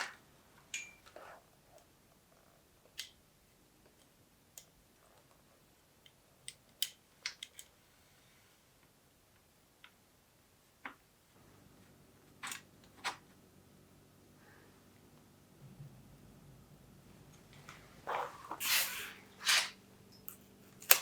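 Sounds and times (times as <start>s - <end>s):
bicycle parts and tools clicking: 6.0s - 7.8s, 20.1s - 21.0s.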